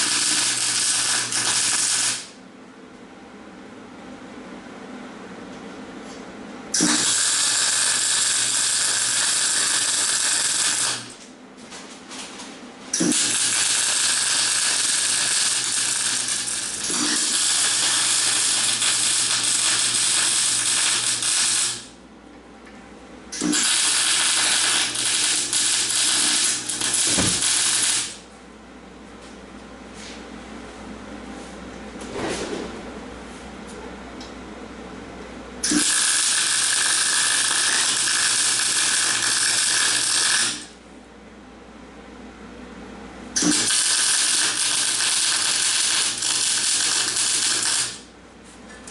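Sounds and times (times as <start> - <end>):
welder crackling sizzle: 0.0 - 2.4, 6.8 - 11.2, 13.0 - 22.0, 23.4 - 28.2, 35.6 - 40.7, 43.4 - 48.1
low electrical hum: 0.0 - 48.9.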